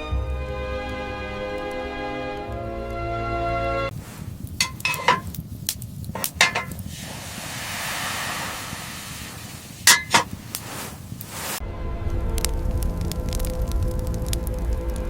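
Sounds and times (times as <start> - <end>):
music: 0.0 - 3.9, 11.6 - 15.0
steady hiss: 3.9 - 11.6
ringing clinks: 4.6 - 5.3, 9.9 - 10.3.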